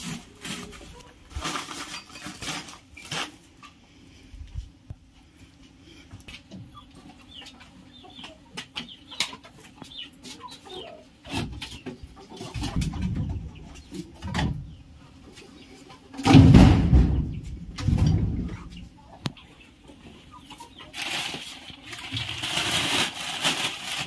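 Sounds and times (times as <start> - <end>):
chickens clucking: 0.0 - 24.0
birds chirping: 6.6 - 16.2.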